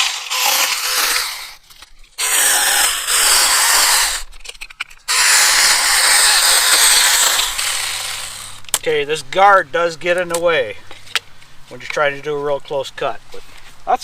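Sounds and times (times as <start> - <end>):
electric chainsaw cutting branches: 0.0 - 1.6, 2.2 - 4.3, 5.1 - 8.7.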